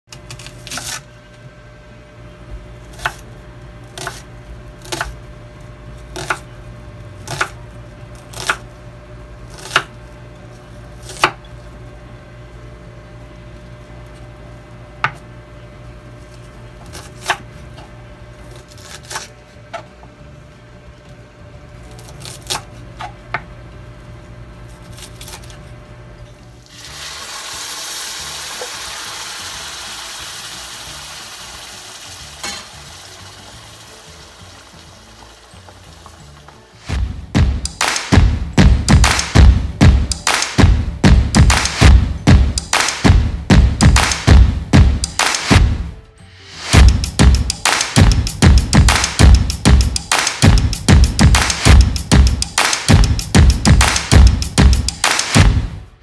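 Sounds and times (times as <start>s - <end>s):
steady low hum: 0.1s - 26.7s, 33.2s - 56.0s
food sizzling in wok: 26.7s - 37.0s.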